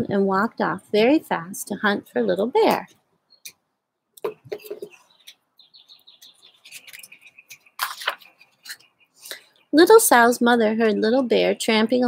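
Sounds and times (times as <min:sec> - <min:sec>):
songbird chirping: 0:01.9 - 0:12.0
book being handled: 0:06.5 - 0:08.9.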